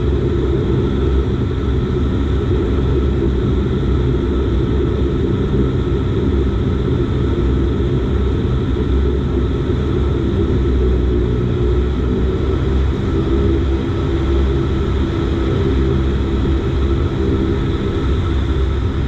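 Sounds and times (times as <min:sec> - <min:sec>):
turboprop engines droning: 0:00.0 - 0:19.0.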